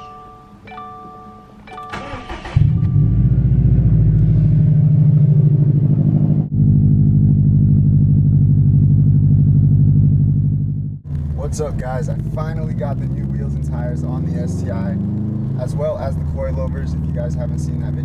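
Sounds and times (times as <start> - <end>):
dashboard chime: 0.0 - 3.6
car engine starting and idling: 1.7 - 18.0.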